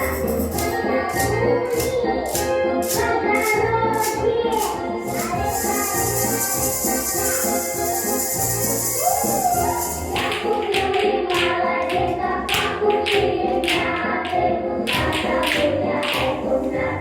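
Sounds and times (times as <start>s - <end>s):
shaken percussion rattle: 0.0s - 1.3s, 2.8s - 10.4s
recorded music: 0.0s - 17.0s.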